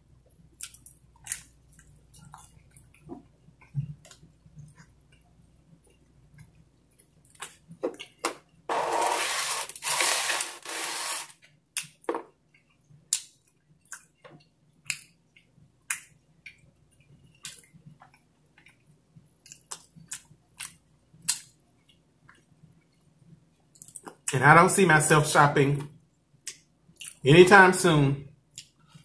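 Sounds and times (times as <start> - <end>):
man chewing: 0.3 - 14.2, 26.4 - 27.2
loud noise: 8.7 - 11.3.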